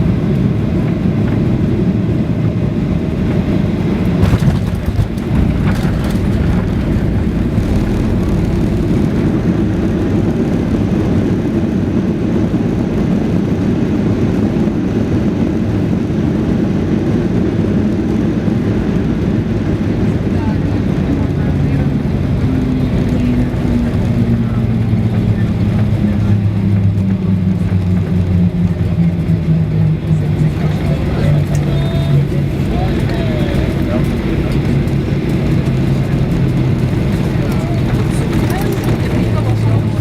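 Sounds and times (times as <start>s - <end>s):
jet engine cabin rumble: 0.0s - 40.0s
rushing air: 3.4s - 12.6s.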